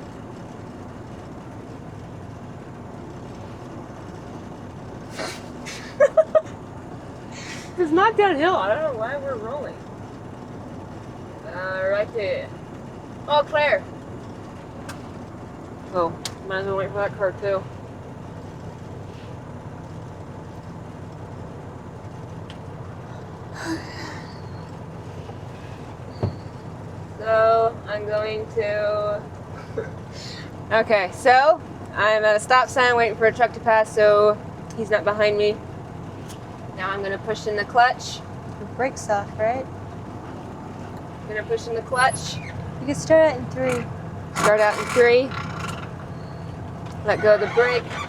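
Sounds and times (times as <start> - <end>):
truck engine rumble: 0.0 - 48.0
thump: 26.2 - 26.4.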